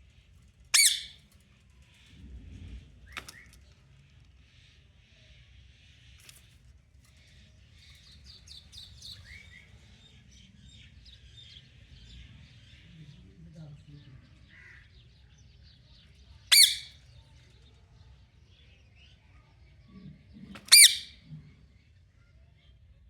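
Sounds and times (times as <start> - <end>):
parrot chirping: 0.8 - 1.2, 16.5 - 16.9, 20.6 - 21.2.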